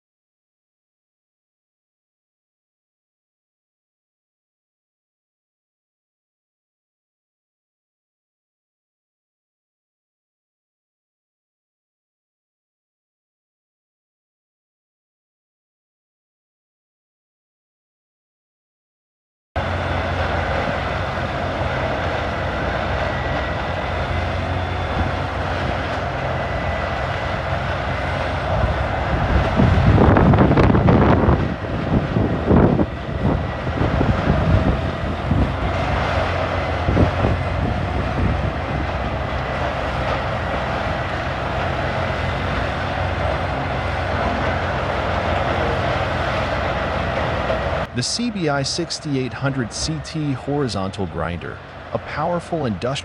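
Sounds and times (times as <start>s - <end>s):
wood grinder running: 19.6s - 47.9s.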